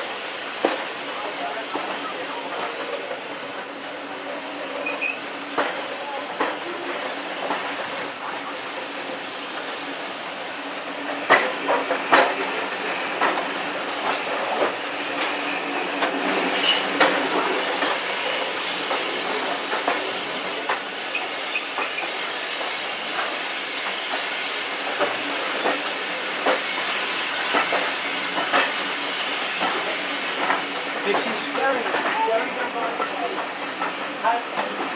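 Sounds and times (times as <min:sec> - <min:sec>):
train rumbling on track: 0:00.0 - 0:34.9
wheels clicking over rail joints: 0:11.1 - 0:34.9.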